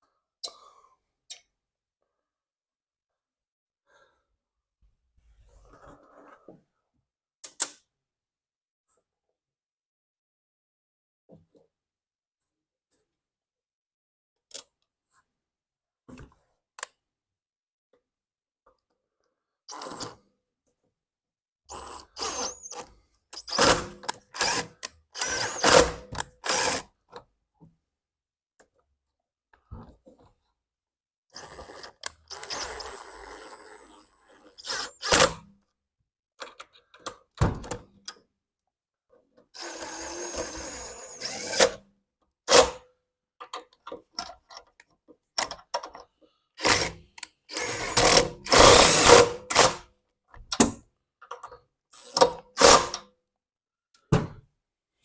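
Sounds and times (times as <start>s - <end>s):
small power drill running: 21.7s - 22.8s, 23.4s - 26.8s, 31.4s - 35.3s, 39.6s - 41.8s, 46.6s - 46.9s, 47.5s - 49.8s.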